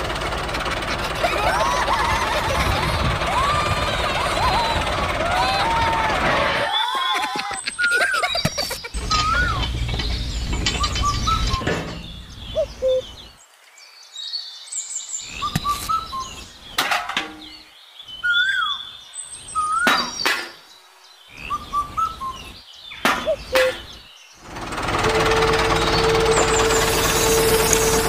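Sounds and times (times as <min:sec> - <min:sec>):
low rumble: 0:00.0 - 0:06.6, 0:09.0 - 0:13.3
small birds chirping: 0:06.7 - 0:16.8, 0:17.4 - 0:24.6, 0:25.6 - 0:28.0.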